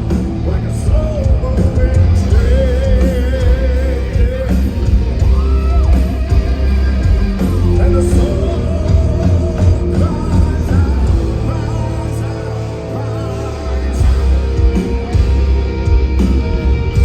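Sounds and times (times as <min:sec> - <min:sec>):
heavy metal band playing live: 0:00.0 - 0:17.0.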